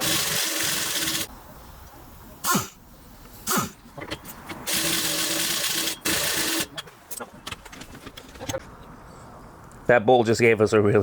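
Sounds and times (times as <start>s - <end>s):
power tool rattling on bolt: 0.0s - 1.3s, 4.7s - 6.8s.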